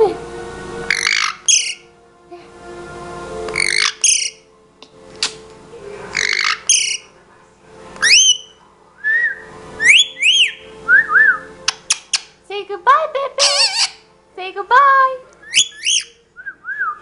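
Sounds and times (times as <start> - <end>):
bird squawks: 0.9 - 1.8, 3.6 - 4.4, 6.2 - 7.1, 8.0 - 8.6, 9.8 - 10.6, 13.4 - 14.0, 15.5 - 16.1
bird whistling upward notes: 0.9 - 1.8, 3.6 - 4.4, 6.2 - 7.0, 8.0 - 12.0, 15.4 - 17.0.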